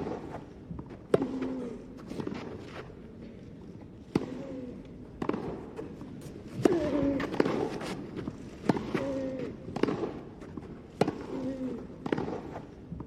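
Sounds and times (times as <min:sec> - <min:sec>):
tennis ball struck by rackets: 0:05.2 - 0:05.8, 0:08.6 - 0:09.0, 0:09.7 - 0:12.7.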